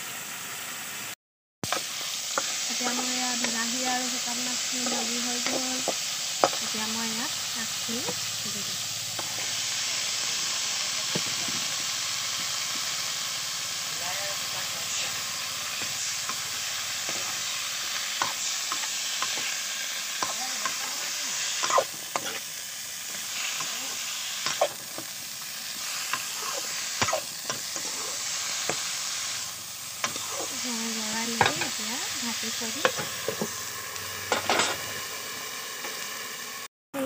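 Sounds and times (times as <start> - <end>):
food sizzling in hot oil: 0.0 - 37.0
spatula scraping and knocking pan: 1.7 - 6.7, 15.7 - 17.4, 18.1 - 20.8, 30.0 - 30.6, 31.3 - 31.8, 32.8 - 33.6.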